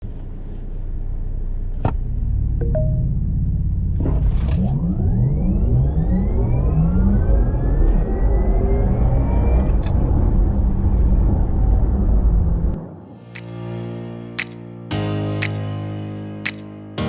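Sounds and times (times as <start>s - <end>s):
low rumble: 1.0s - 14.2s
electric drivetrain whine rising: 3.5s - 12.9s.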